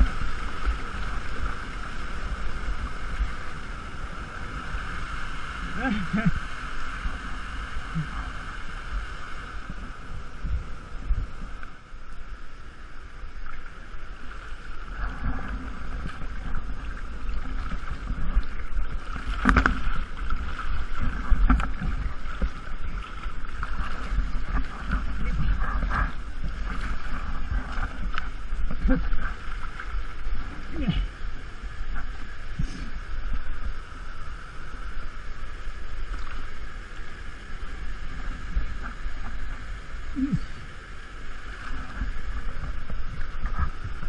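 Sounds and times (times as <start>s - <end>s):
rushing waterfall: 0.0s - 44.0s
wind buffeting microphone: 14.1s - 33.6s
splashes and knocks: 17.4s - 25.6s.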